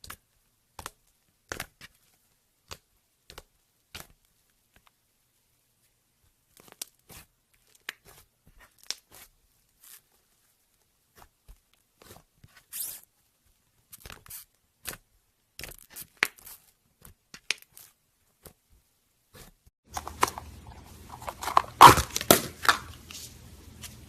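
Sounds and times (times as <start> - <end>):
slime popping and crackling: 6.5 - 10.0, 15.6 - 18.6, 19.4 - 23.1.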